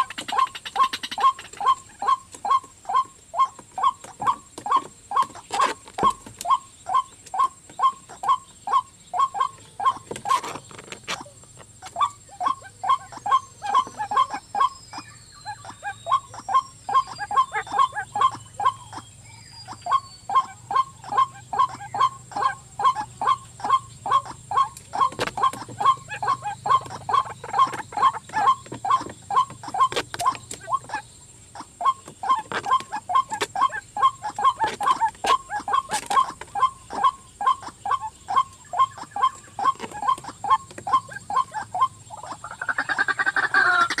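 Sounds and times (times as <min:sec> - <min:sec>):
waterhen croaking call: 0:00.0 - 0:44.0.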